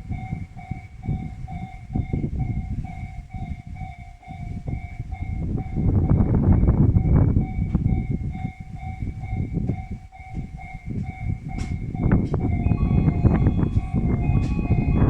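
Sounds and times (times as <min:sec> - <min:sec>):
wind buffeting microphone: 0:00.0 - 0:15.0
electronic warning bell ringing: 0:12.4 - 0:15.0.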